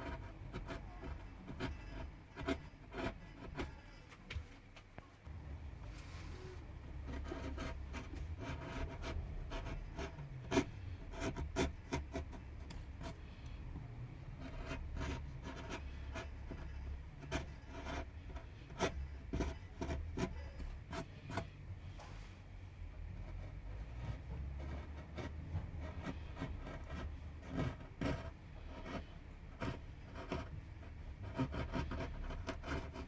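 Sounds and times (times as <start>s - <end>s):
carving tool scraping wood: 0.0s - 4.0s, 5.9s - 21.6s, 23.1s - 33.0s.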